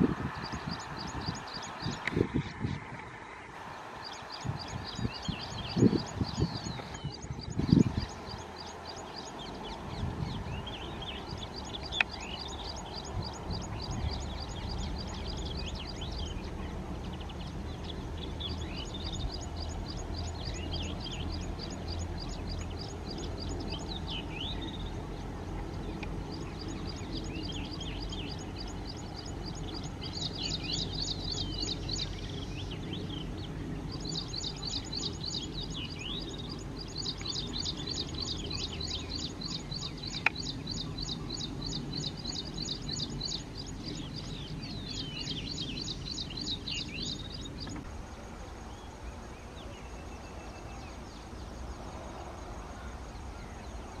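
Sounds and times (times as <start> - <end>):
birds chirping: 0.0 - 54.0
low steady hum: 0.0 - 54.0.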